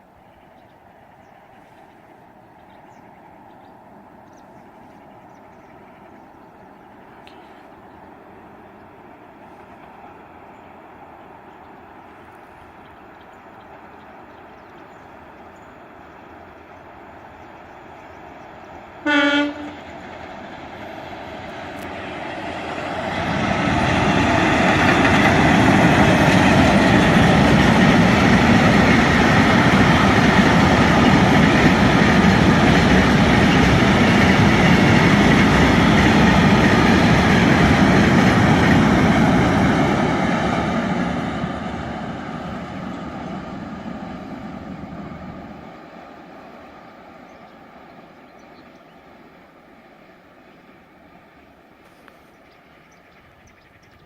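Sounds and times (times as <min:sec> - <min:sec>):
freight train passing: 0:00.0 - 0:54.0
locomotive horn blast: 0:19.0 - 0:19.9.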